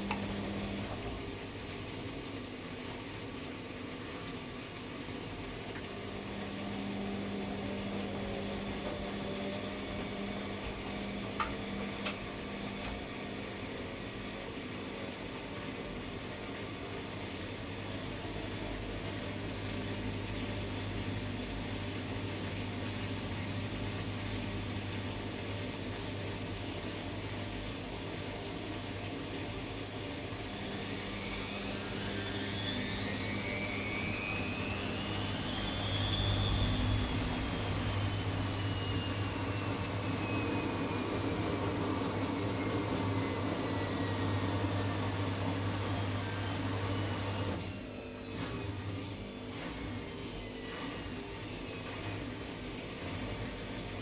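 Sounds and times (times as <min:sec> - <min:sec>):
motor whine rising in pitch: 0:00.0 - 0:01.2, 0:05.9 - 0:14.2, 0:19.2 - 0:51.8
washing machine spinning: 0:00.0 - 0:54.0.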